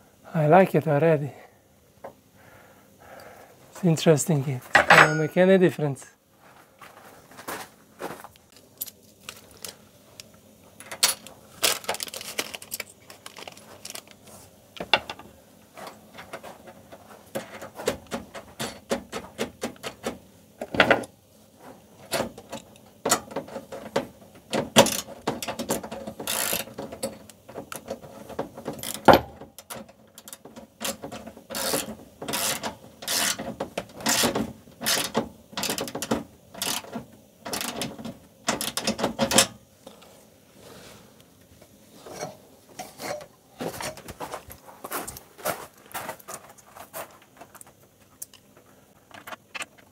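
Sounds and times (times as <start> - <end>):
hand tools clicking and scraping: 21.6 - 40.0, 42.0 - 49.9.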